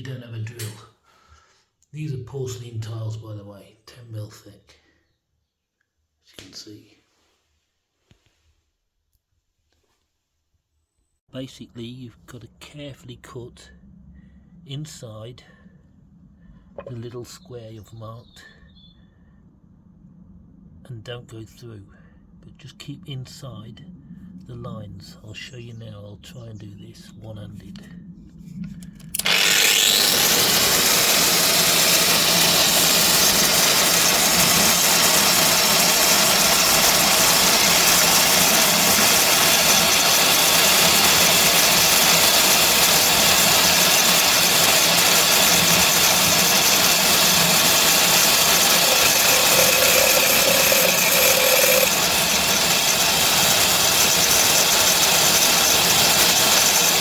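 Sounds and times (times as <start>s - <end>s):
angle grinder cutting tile: 29.2s - 57.0s.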